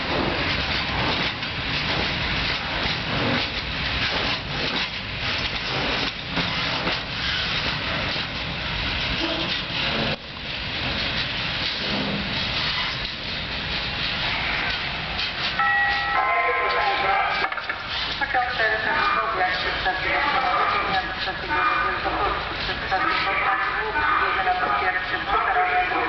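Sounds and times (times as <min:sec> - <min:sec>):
train wagons rolling past: 0:00.0 - 0:26.0
ringing tones: 0:15.6 - 0:16.4.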